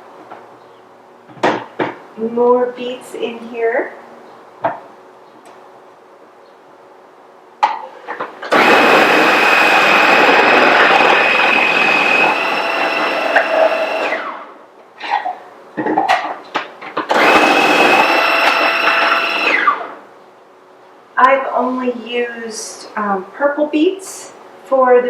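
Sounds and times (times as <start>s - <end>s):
food processor chopping: 8.5s - 14.4s, 17.0s - 19.9s.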